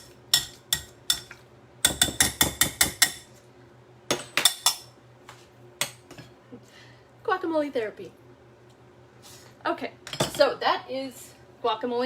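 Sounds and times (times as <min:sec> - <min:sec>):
potato masher knocking against bowl: 0:00.0 - 0:03.2.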